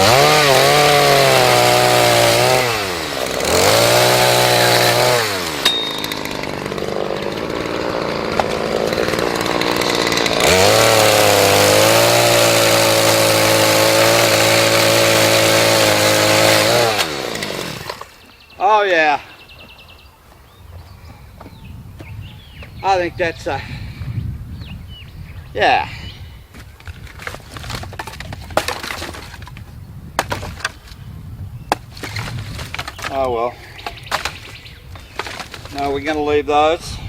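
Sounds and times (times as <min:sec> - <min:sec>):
chainsaw revving and idling: 0:00.0 - 0:18.2.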